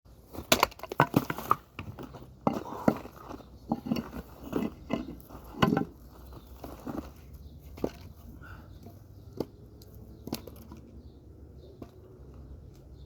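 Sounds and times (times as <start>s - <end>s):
dry wood cracking and splintering: 0.3s - 8.1s.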